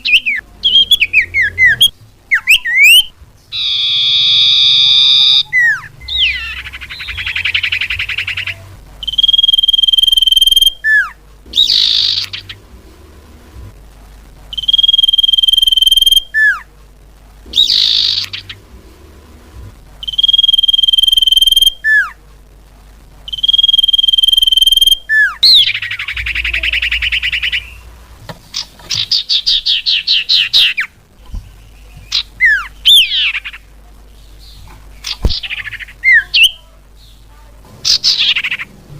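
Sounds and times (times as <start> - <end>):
rapid buzzy trills: 0.0 - 22.2.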